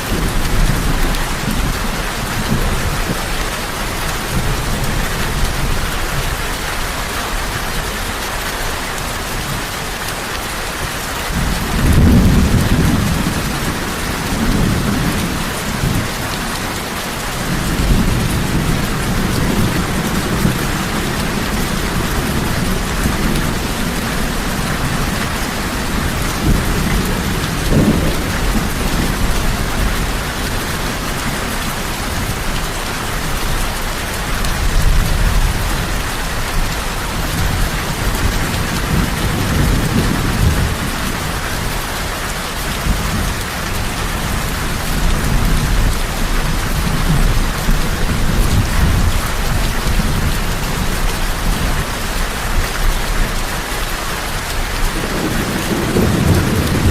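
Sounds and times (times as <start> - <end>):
heavy rain: 0.0 - 56.9
rolling thunder: 17.2 - 30.6, 54.9 - 56.9.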